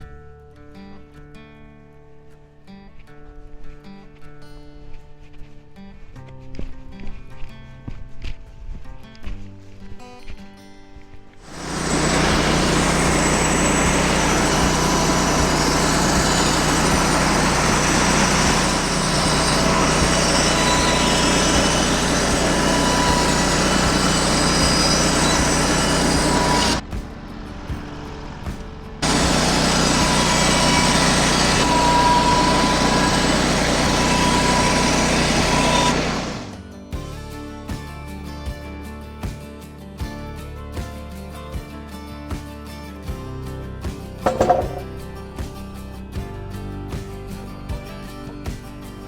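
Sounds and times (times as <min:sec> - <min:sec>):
engine running steadily: 0:11.5 - 0:36.6.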